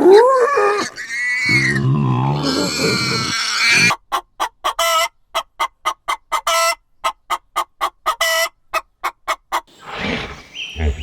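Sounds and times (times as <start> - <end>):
chicken clucking: 3.9 - 11.0.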